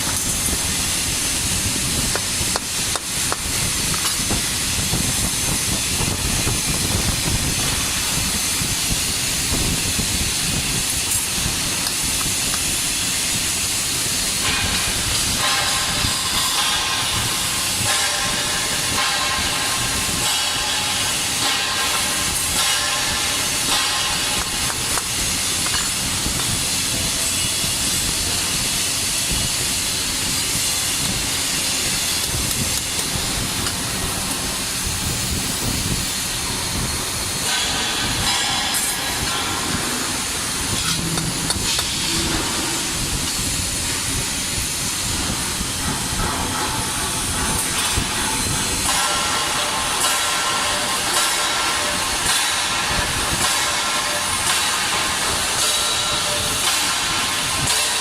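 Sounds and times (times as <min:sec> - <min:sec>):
welding arc hissing: 0:00.0 - 0:58.0.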